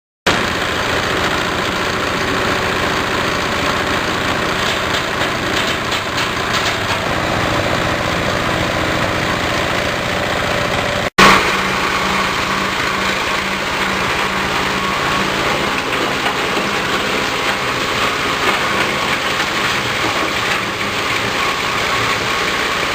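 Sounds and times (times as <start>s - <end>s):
chopper machine running: 0.3s - 22.9s.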